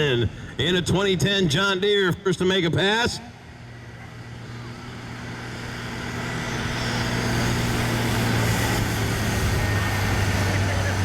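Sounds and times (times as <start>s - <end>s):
tractor diesel engine under load: 3.5s - 11.0s.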